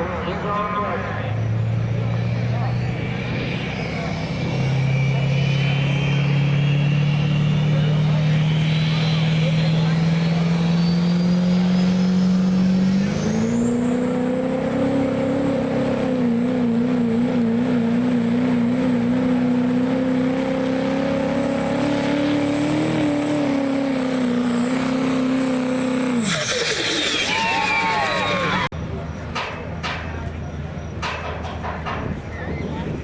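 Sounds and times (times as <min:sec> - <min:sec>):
diesel engine at full throttle: 0:00.0 - 0:33.0
high turbo whistle: 0:01.9 - 0:13.7, 0:22.5 - 0:28.7.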